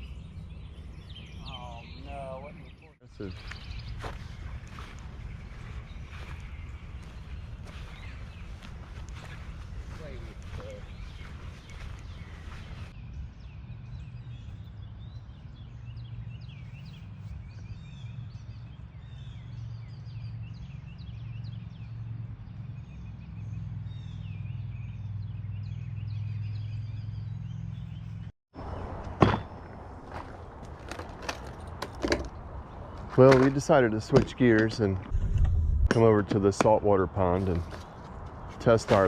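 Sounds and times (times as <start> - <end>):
small birds chirping: 0.0 - 39.0
steady low rumble: 2.9 - 14.0, 33.9 - 36.2
sharp knocks: 29.0 - 29.7.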